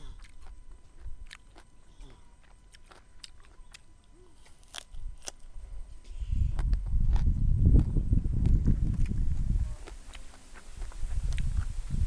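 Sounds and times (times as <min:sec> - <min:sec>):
crunchy chewing of vegetable: 0:00.0 - 0:12.0
fingers clicking picking at food: 0:00.2 - 0:05.5.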